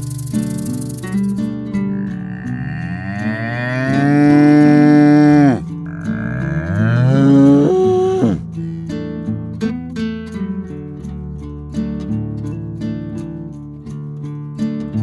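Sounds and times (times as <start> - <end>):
guitar background music: 0.0 - 15.0
animal mooing: 1.8 - 8.4.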